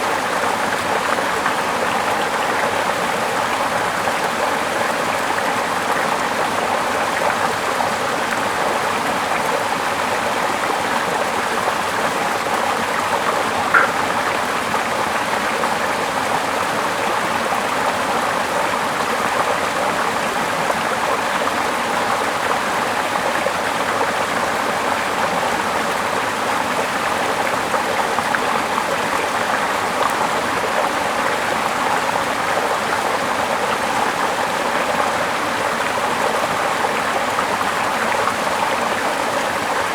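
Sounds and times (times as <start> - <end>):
sharp click: 13.7 - 14.1.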